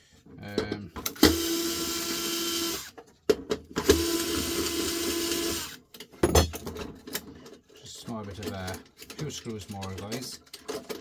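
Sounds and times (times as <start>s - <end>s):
power screwdriver running: 1.1s - 3.0s, 3.8s - 5.8s.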